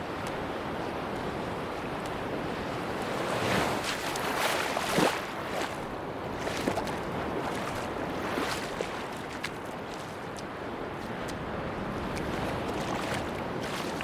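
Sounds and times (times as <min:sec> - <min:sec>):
surf washing onto beach: 0:00.0 - 0:14.0
wave breaking: 0:03.0 - 0:14.0.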